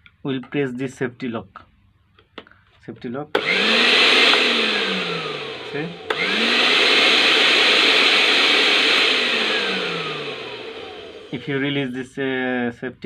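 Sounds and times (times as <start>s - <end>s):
blender motor running: 3.4s - 11.6s.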